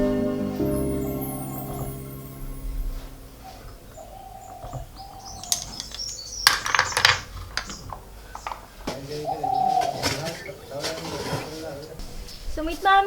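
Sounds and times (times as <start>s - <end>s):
birds chirping: 0.0s - 13.0s
sharp clicks and clinks: 5.2s - 8.7s.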